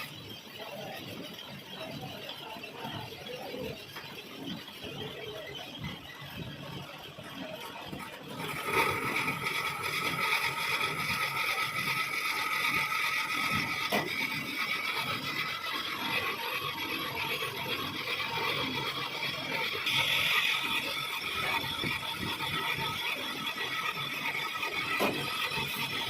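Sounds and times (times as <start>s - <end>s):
metal lathe cutting thread: 8.0s - 26.0s.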